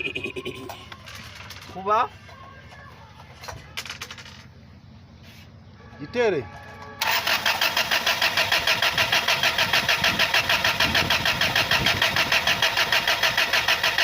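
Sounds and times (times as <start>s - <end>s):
engine cranking on starter: 7.0s - 14.0s.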